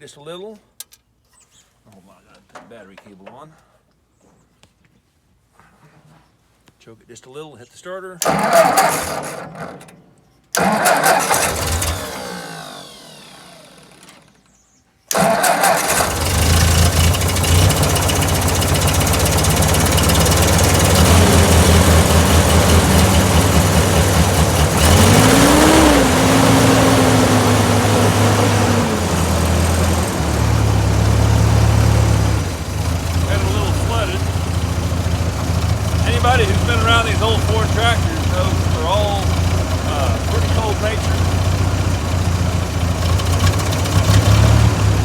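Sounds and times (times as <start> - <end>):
tractor engine running: 8.2 - 9.8, 10.6 - 14.3, 15.1 - 45.0
engine cranking: 8.2 - 14.5, 15.1 - 45.0.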